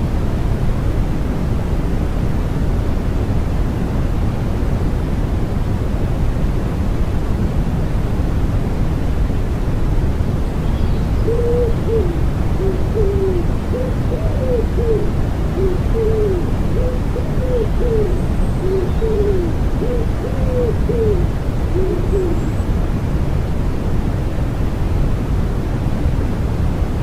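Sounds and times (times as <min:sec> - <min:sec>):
low white-noise rush: 0:00.0 - 0:27.0
wood pigeon cooing: 0:11.2 - 0:22.6.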